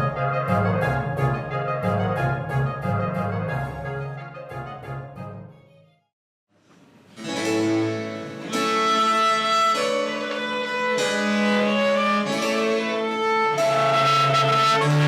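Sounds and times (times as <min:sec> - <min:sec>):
bowed strings led by violin: 0:07.2 - 0:15.0
harpsichord: 0:07.2 - 0:15.0.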